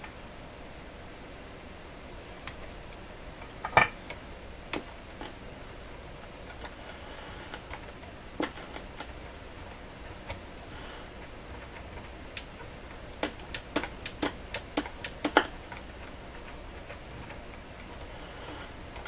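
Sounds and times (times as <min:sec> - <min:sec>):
hard plastic clicks and taps: 0:13.2 - 0:15.5.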